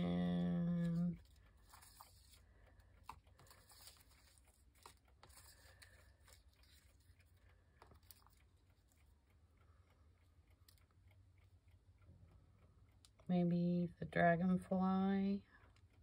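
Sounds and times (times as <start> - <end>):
low steady hum: 0.0 - 16.0
paper rustling and tapping: 0.3 - 8.9.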